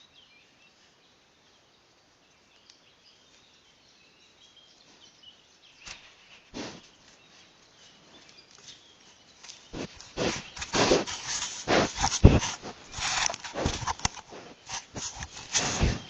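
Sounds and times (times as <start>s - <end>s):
short noisy bursts: 9.8s - 16.0s.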